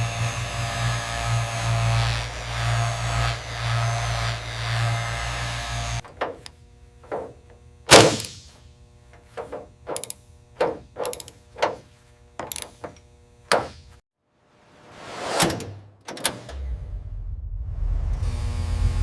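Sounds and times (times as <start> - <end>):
mechanical drone: 0.0 - 13.6, 16.4 - 19.0
knocks and thunks: 10.6 - 11.8.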